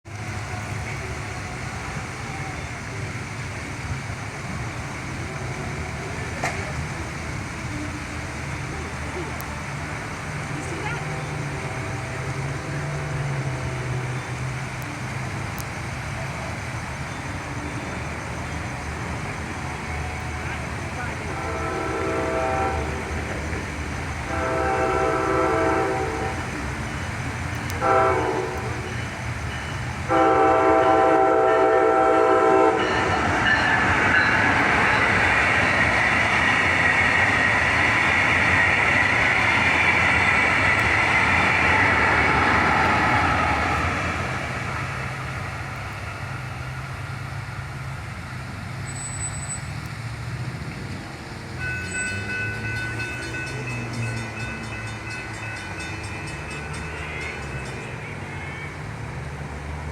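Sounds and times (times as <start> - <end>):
train rumbling past: 0.0 - 59.9
wheels hissing on rail: 0.0 - 59.9
train horn blasts: 10.4 - 14.5, 19.8 - 26.8, 27.4 - 35.8.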